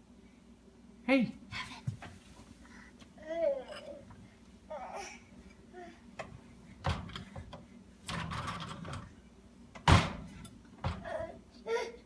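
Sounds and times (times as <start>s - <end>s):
dishwasher rack clicks and knocks: 6.2s - 9.1s, 9.8s - 11.1s.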